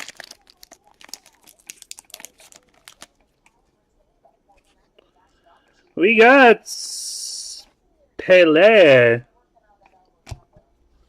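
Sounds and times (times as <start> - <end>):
wrappers crinkling: 0.0 - 3.3.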